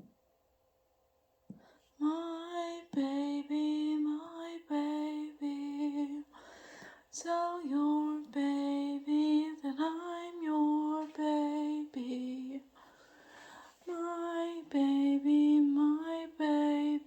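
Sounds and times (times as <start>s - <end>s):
woman singing unaccompanied: 2.0s - 17.0s
singer breathing: 6.3s - 7.1s, 12.7s - 13.8s.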